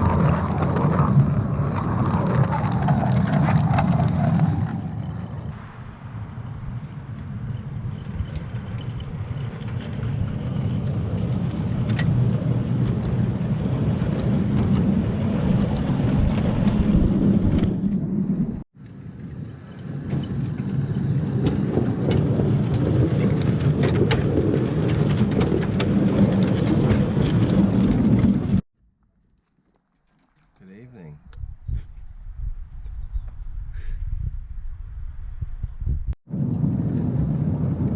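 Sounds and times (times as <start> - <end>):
train wheels rumbling on rails: 6.6 - 18.6, 19.3 - 28.6.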